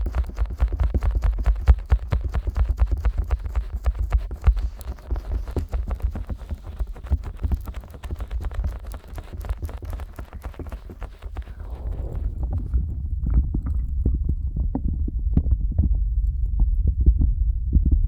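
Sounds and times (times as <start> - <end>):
fingers tapping on microphone: 0.0 - 12.8
deep muffled thuds: 11.4 - 18.0.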